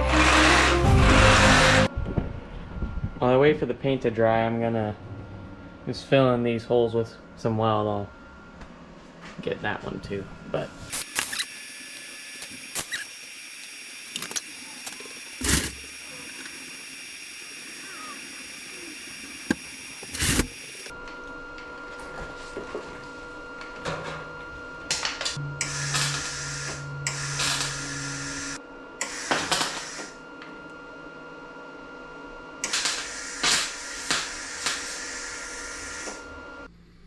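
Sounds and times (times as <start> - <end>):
electric welder bursts: 0.0 - 1.9, 10.9 - 20.9, 25.6 - 30.2, 32.6 - 36.2.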